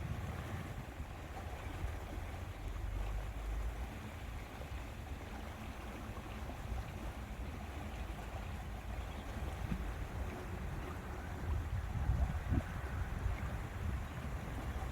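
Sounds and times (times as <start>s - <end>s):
wind rumbling on microphone: 0.0s - 3.0s, 7.7s - 14.9s
lake water washing: 0.0s - 14.9s.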